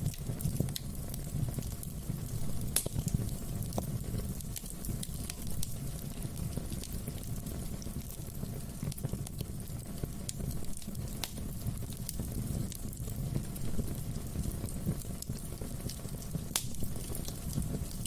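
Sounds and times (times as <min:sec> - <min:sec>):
sharp pops of fire: 0:00.0 - 0:18.0
wood fire crackling: 0:00.0 - 0:18.0.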